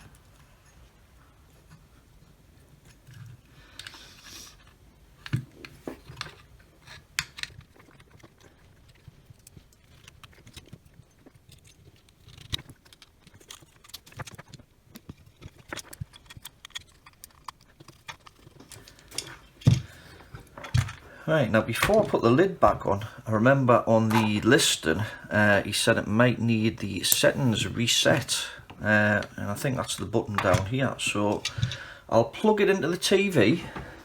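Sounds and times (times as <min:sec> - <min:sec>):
plastic parts clicking and tapping: 0:04.6 - 0:23.1, 0:24.0 - 0:24.6, 0:28.2 - 0:32.0.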